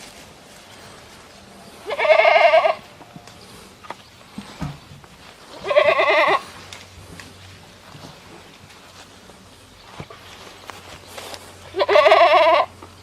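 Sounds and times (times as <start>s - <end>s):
goat bleating: 1.8s - 3.0s, 5.5s - 6.6s, 11.6s - 12.8s.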